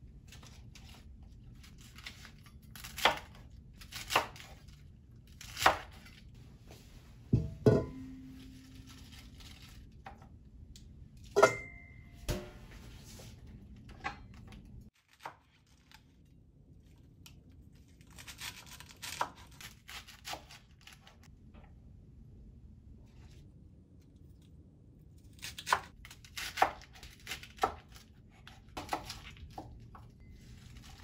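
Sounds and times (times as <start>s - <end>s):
rustling and tearing: 8.5s - 10.0s
ringing clink: 11.4s - 12.1s.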